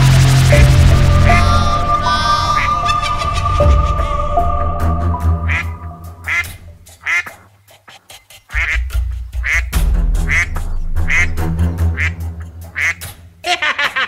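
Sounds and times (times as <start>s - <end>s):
background music: 0.0s - 7.4s, 8.5s - 14.0s
duck quacking: 1.3s - 3.2s, 5.5s - 13.1s.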